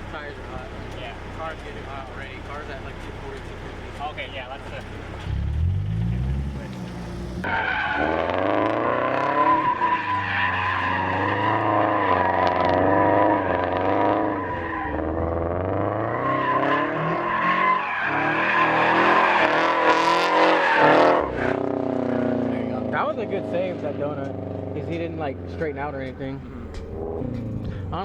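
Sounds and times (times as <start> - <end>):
car engine revving: 0.0 - 28.0
tires squealing: 0.0 - 28.0.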